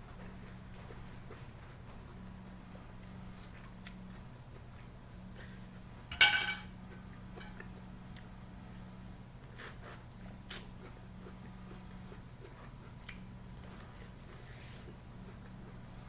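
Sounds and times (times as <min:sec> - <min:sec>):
steady low hum: 0:00.0 - 0:16.0
utensil clinking against bowl: 0:06.1 - 0:06.8.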